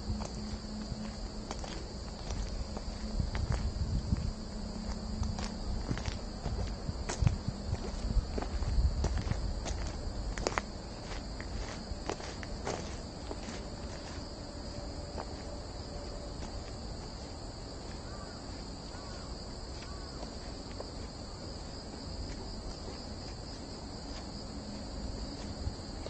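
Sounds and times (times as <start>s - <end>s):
faint footsteps on forest floor: 0.0s - 26.0s
insects droning: 0.0s - 26.0s.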